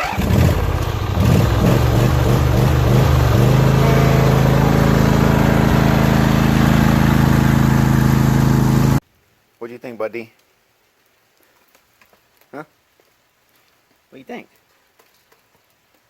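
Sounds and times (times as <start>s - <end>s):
lawn tractor engine running: 0.0s - 9.0s.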